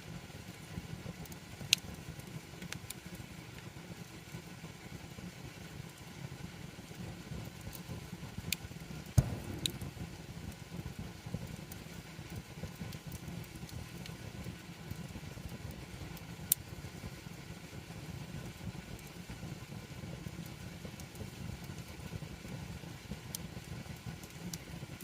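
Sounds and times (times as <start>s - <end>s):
low rumble of fire: 0.0s - 25.0s
campfire crackling: 0.4s - 25.0s
sharp pops of fire: 8.5s - 16.7s.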